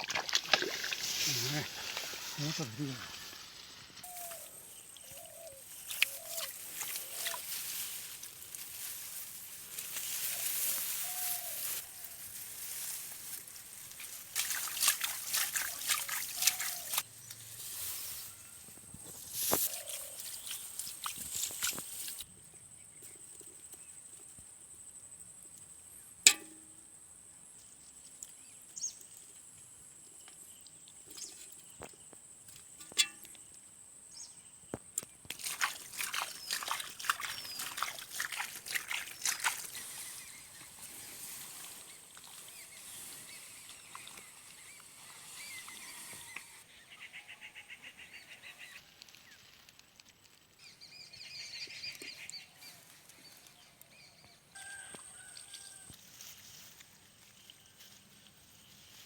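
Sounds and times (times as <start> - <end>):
water splashing and trickling: 0.0 - 22.3, 35.0 - 46.6
dense crackling splashes: 12.7 - 17.0, 35.3 - 39.9.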